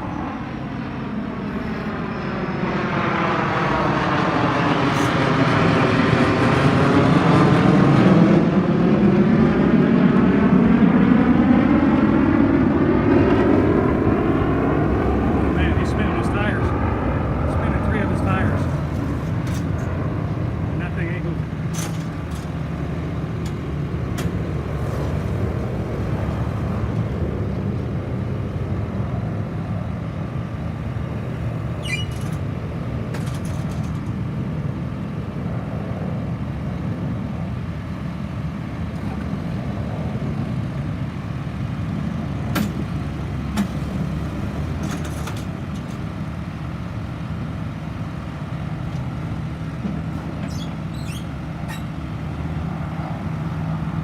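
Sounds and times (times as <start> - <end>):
heavy vehicle engine rumbling: 0.0 - 54.0
brief squeaks and clicks: 31.8 - 32.4, 50.4 - 52.0.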